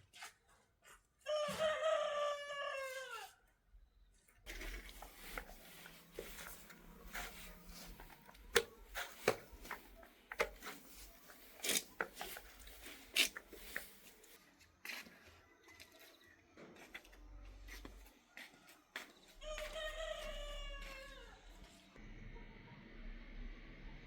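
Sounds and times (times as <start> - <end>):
taps and clicks of tools: 4.6 - 14.4.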